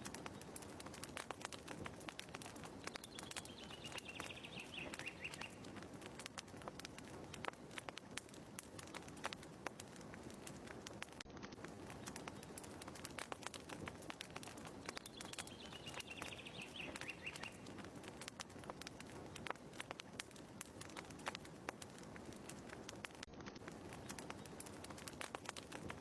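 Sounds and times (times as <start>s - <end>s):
fireplace crackling: 0.0s - 26.0s
bird twitter: 2.9s - 5.7s, 14.8s - 17.7s.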